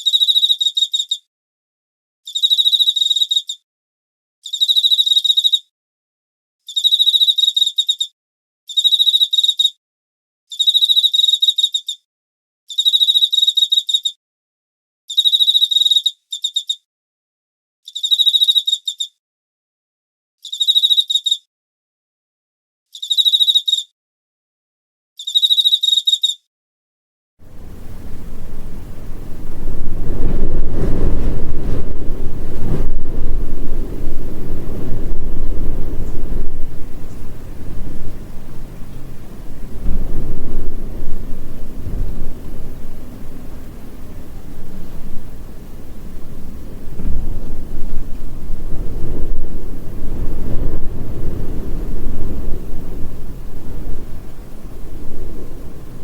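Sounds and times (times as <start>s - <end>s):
rushing wind or water: 27.4s - 56.0s.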